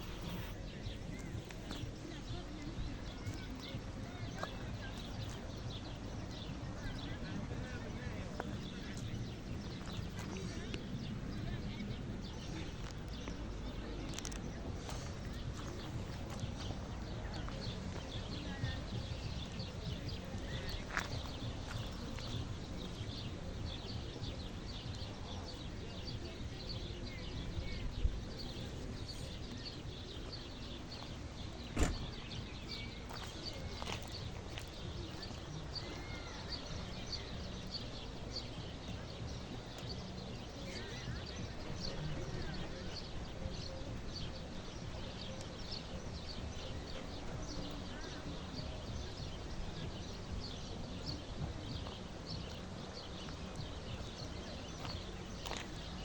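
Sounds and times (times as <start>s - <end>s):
small birds chirping: 0.0s - 56.0s
sharp knock: 31.8s - 32.0s.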